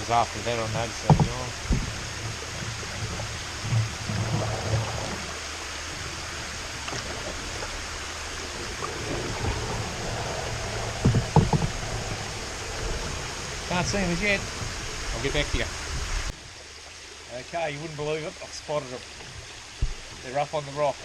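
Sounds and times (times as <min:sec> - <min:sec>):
waterfall rushing: 0:00.0 - 0:16.3
soft low knocks: 0:00.6 - 0:07.6, 0:08.2 - 0:16.3, 0:19.2 - 0:20.2.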